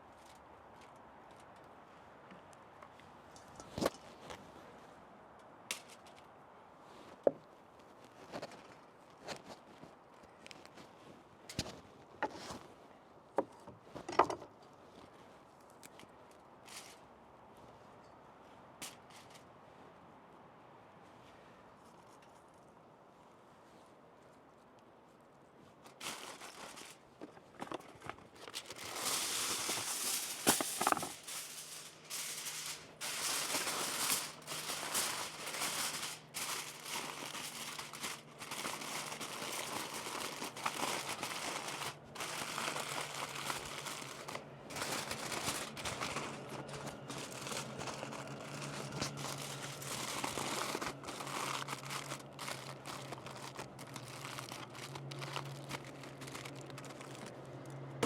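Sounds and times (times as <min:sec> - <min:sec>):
aluminium foil crinkling: 0:25.8 - 0:57.8.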